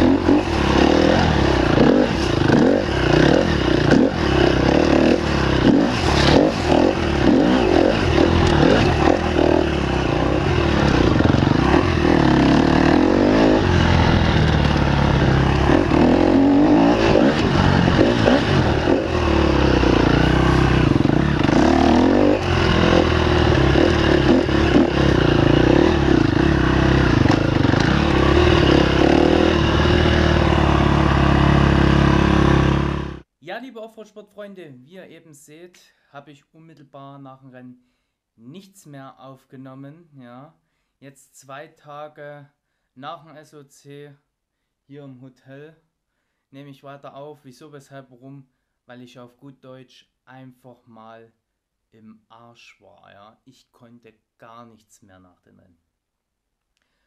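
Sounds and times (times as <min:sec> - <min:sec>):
motorcycle engine revving: 0:00.0 - 0:33.3.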